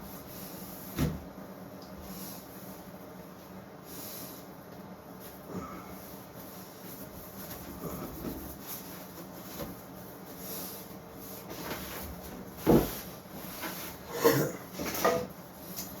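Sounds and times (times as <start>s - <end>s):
quiet shuffling and rubbing: 2.0s - 14.0s.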